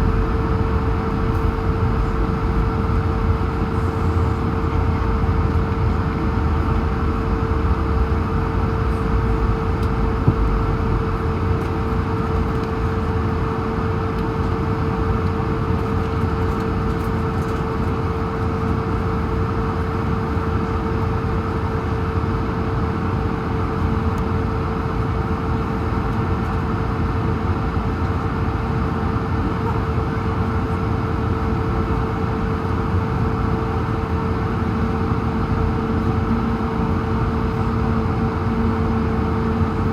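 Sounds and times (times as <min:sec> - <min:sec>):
steady mid-pitched tone: 0:00.0 - 0:05.4
jet engines idling in cabin: 0:00.0 - 0:39.9.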